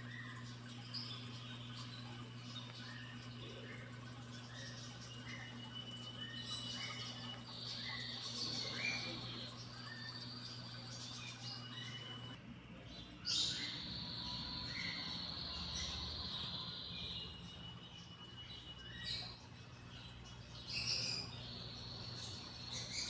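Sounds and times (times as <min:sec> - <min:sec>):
thin high steady tone: 0:00.0 - 0:12.4
birds chirping and calling: 0:00.0 - 0:23.0.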